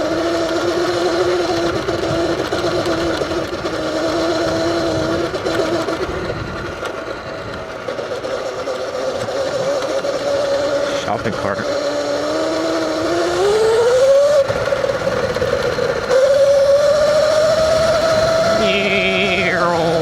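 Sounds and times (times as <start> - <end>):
electric motor whining: 8.8 - 20.0.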